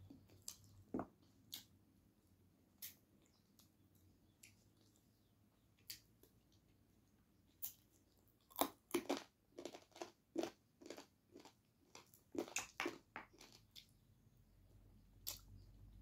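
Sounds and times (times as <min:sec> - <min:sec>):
crunchy chewing: 0:07.5 - 0:14.0.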